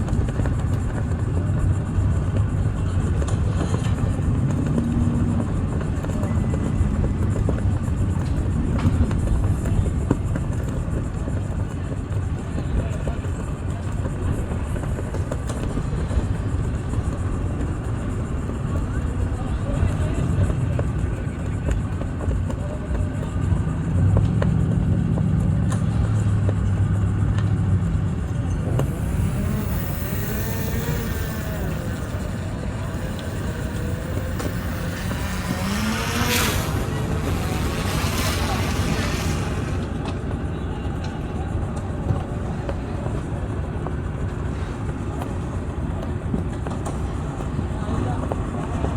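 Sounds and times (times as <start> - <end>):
engines idling: 0.0 - 40.6.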